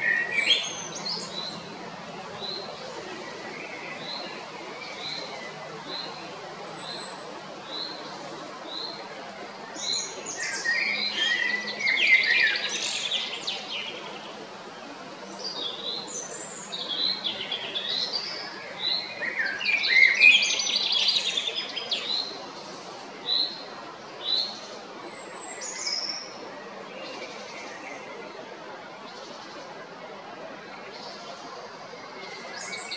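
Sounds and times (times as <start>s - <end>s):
blackbird singing: 0.0s - 1.7s, 9.8s - 14.3s, 15.3s - 22.4s.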